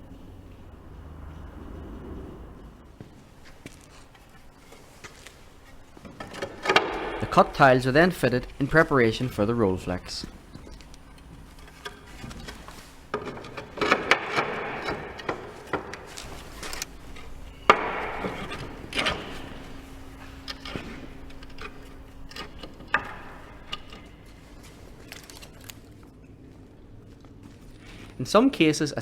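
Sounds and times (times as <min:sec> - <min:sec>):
roof tiles scraping and clattering: 0:03.5 - 0:26.0.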